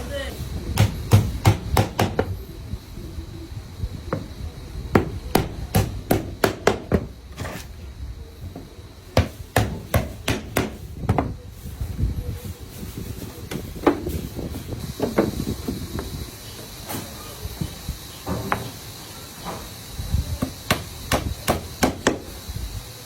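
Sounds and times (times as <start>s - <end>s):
hammer blows on wood: 0.6s - 2.4s, 4.1s - 7.2s, 9.2s - 11.4s, 20.4s - 22.4s.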